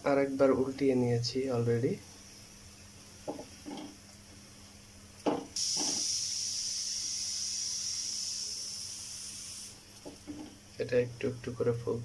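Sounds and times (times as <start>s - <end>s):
loud oil sizzle: 5.6s - 9.8s.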